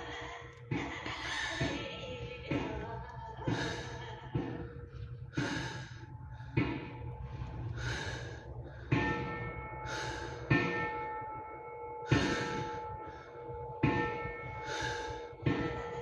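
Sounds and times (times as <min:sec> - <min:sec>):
steady ringing tones: 0:00.0 - 0:16.0
bell-like strikes with breathy hiss: 0:05.4 - 0:16.0.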